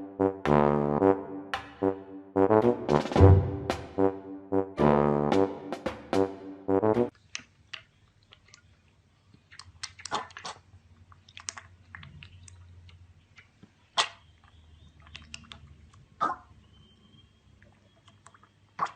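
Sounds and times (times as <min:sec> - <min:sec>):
chewing crunches: 0:07.1 - 0:16.4, 0:17.6 - 0:18.9.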